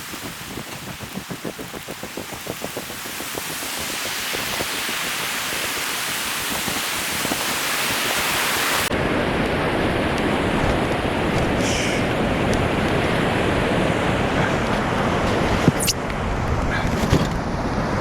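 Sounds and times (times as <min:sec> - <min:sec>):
rushing river water: 0:00.0 - 0:08.9.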